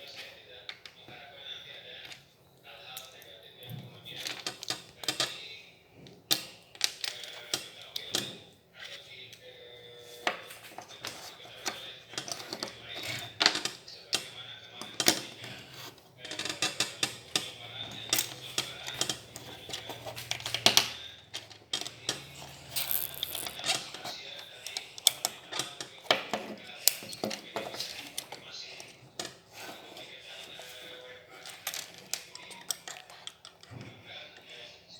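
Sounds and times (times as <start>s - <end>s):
plastic bricks clicking and clattering: 22.8s - 23.6s.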